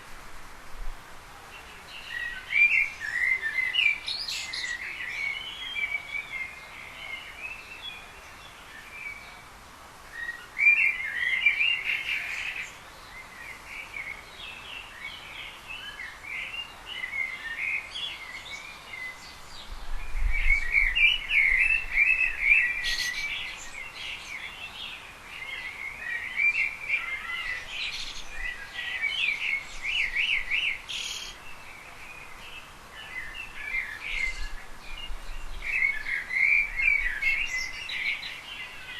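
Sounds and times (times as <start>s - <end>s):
small birds chirping: 0.8s - 38.9s.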